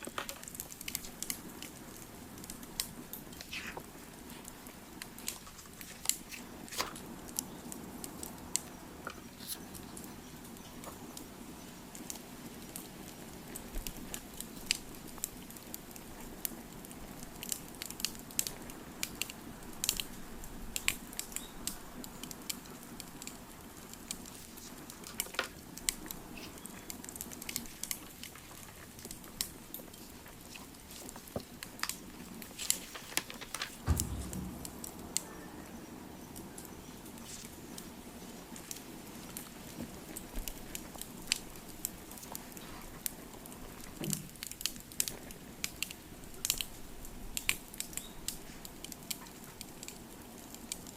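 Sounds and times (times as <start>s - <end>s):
wood fire crackling: 0.0s - 50.9s
dull thump: 33.0s - 35.2s.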